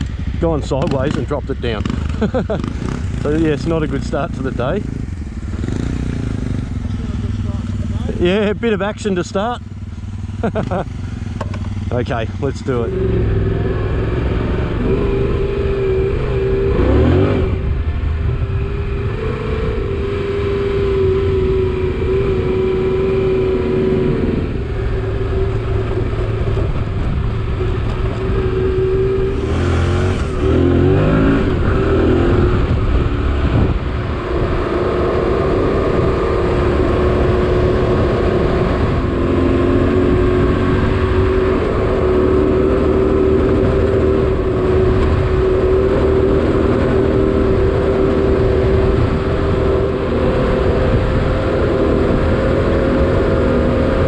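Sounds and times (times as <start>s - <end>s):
motorcycle engine revving: 0.0s - 54.0s
wind rushing over microphone: 11.7s - 54.0s.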